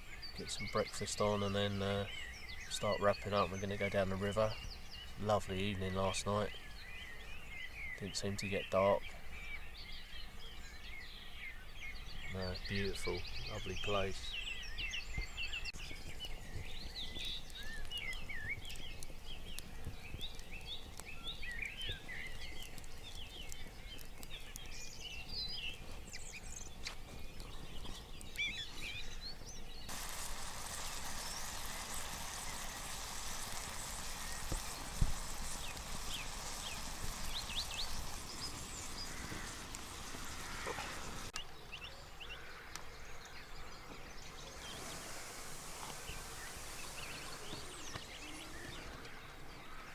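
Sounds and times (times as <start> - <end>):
songbirds chirping and trilling: 0.0 - 49.9
steady hiss: 29.9 - 41.4, 44.4 - 49.0.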